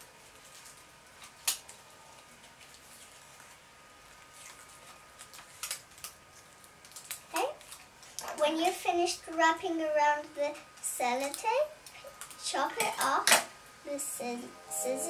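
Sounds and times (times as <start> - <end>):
sticky tape crackling: 0.2 - 9.5.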